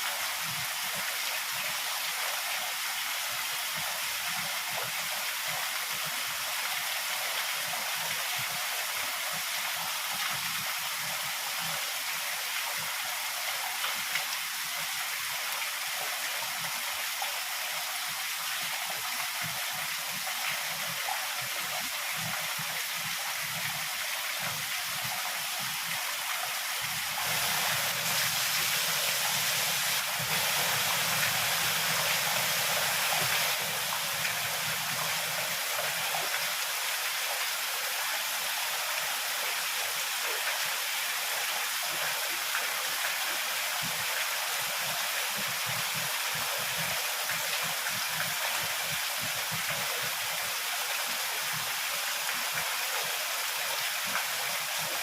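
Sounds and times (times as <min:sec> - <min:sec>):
heavy rain falling: 0:20.8 - 0:40.2, 0:40.8 - 0:55.0.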